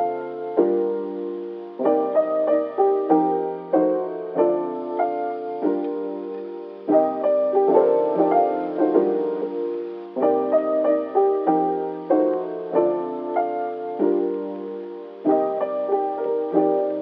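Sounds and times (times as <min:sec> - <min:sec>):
soft keyboard chords and melody: 0:00.0 - 0:17.0.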